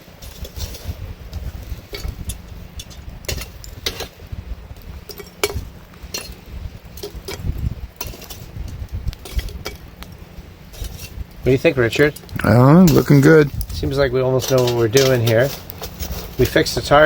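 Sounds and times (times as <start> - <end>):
metal tongs clinking on cast iron: 5.1 - 6.4, 8.0 - 8.5, 9.2 - 9.8, 14.4 - 16.6.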